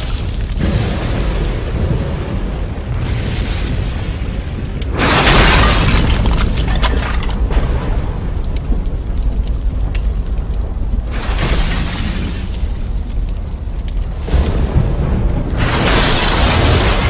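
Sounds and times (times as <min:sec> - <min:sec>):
cracks of falling debris: 0:00.0 - 0:17.0
deep volcanic rumble: 0:00.0 - 0:17.0
loud crashing burst: 0:04.9 - 0:08.2, 0:14.3 - 0:17.0.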